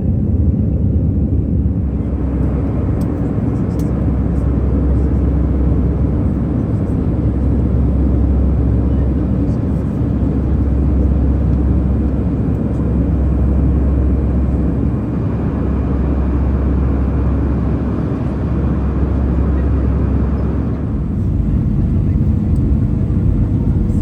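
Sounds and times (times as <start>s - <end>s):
vehicle rumble from inside: 0.0s - 24.0s
deep hum: 19.6s - 24.0s.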